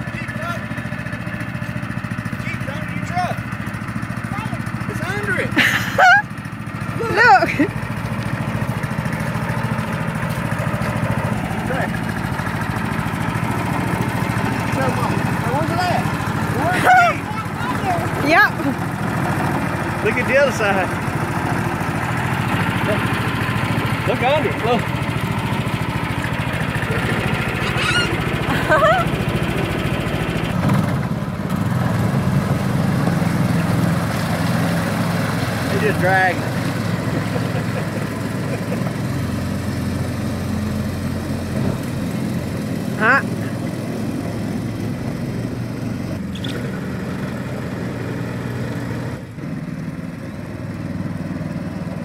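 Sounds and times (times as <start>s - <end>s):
small engine running: 0.0s - 52.0s
small toy truck engine running: 8.4s - 30.5s.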